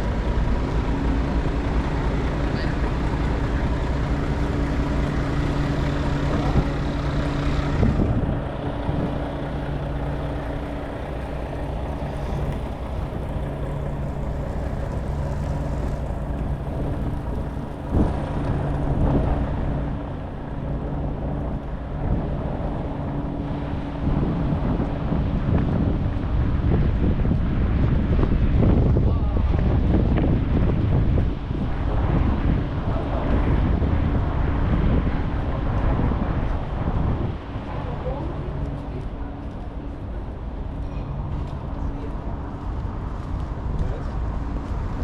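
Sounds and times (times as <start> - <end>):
vehicle engine humming: 0.0 - 25.1, 37.6 - 45.0
road noise: 0.0 - 45.0.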